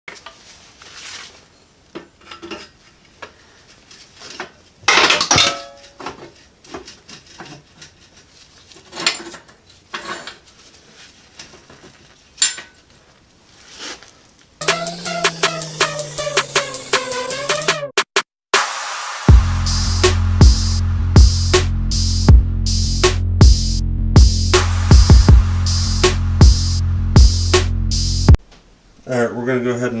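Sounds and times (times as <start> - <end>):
metal objects clinking: 12.4 - 12.8.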